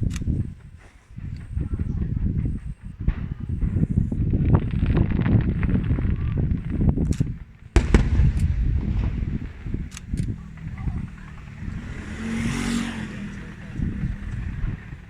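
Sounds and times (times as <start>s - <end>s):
fireworks bursting: 0.0s - 15.0s
low rolling rumble: 0.0s - 15.0s.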